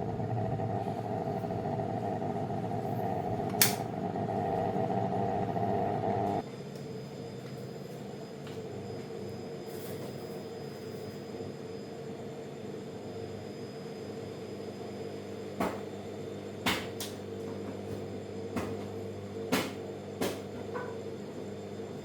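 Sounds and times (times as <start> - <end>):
machine hum: 0.0 - 6.4.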